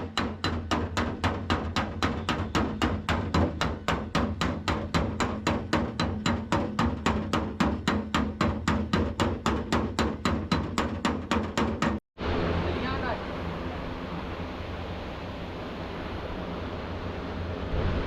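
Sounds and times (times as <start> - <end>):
hammer on sheet metal: 0.0 - 12.0
low hum: 12.2 - 18.0.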